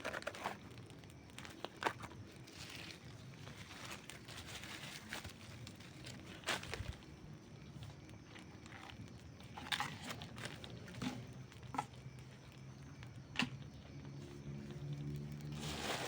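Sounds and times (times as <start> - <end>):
campfire crackling and popping: 0.2 - 3.5, 5.2 - 13.9.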